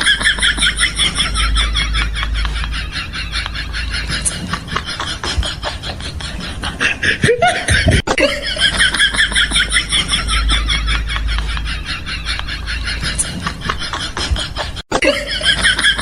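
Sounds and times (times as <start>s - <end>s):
sliding vocal sounds: 0.0s - 8.3s
people laughing: 0.0s - 16.0s.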